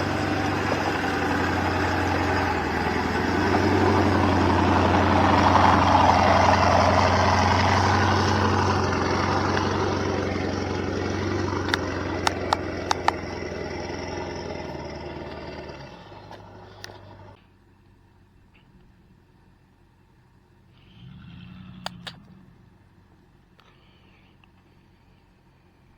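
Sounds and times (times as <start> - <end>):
truck engine running: 0.0 - 20.9
sharp clicks: 11.6 - 13.4, 21.8 - 22.3.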